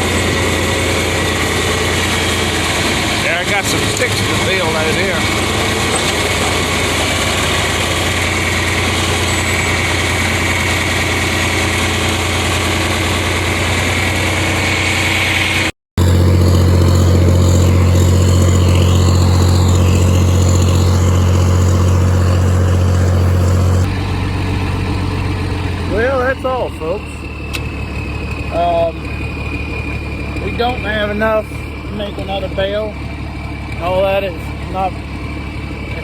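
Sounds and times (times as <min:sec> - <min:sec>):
tractor engine running: 0:00.0 - 0:36.0.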